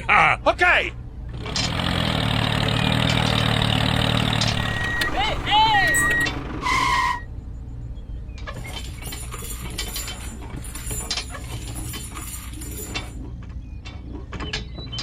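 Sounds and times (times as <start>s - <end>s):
low hum: 3.3s - 7.3s
short beep: 4.3s - 7.3s.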